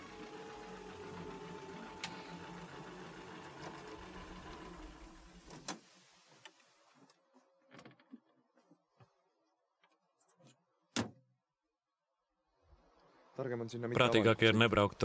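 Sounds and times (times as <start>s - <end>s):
car engine running: 0.0s - 5.7s.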